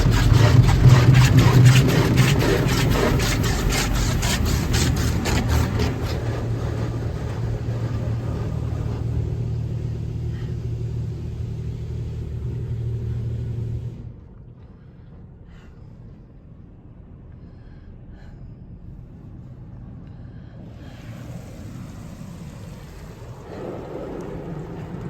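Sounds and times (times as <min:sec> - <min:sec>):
car wash machinery humming: 0:00.0 - 0:14.2, 0:20.6 - 0:25.0
low rumble: 0:00.0 - 0:25.0.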